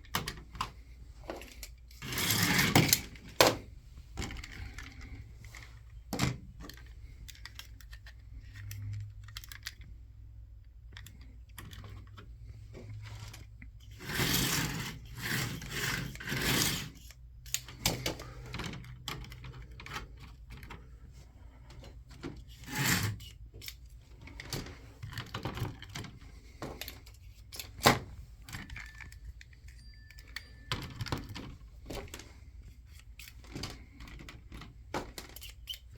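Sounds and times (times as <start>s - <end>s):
slot cars running on plastic track: 14.0s - 16.9s.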